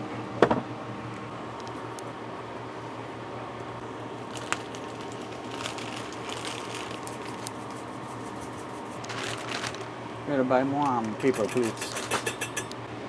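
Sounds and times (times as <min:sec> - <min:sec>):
steady low hum: 0:00.0 - 0:13.0
packaging rustling and crinkling: 0:03.9 - 0:10.1, 0:10.7 - 0:12.3.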